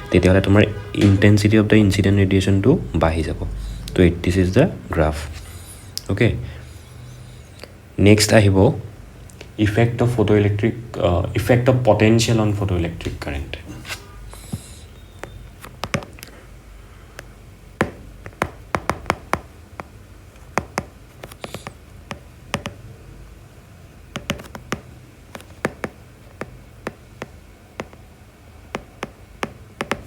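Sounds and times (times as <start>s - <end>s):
pen tapping while writing: 14.4s - 16.3s, 17.8s - 22.9s, 24.1s - 28.1s, 28.7s - 30.0s.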